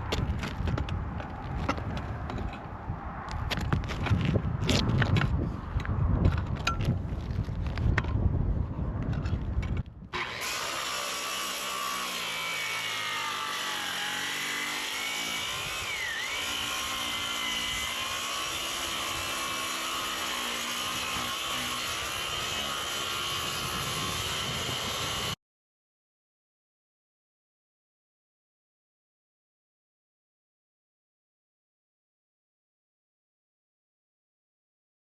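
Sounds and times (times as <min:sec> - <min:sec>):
wind buffeting microphone: 0:00.0 - 0:10.2, 0:22.0 - 0:25.4
reciprocating saw cutting wood: 0:10.2 - 0:25.4.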